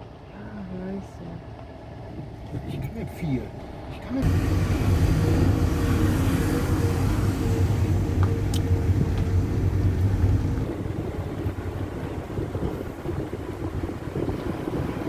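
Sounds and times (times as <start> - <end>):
engine humming: 1.3 - 15.0
wind noise on microphone: 4.2 - 15.0.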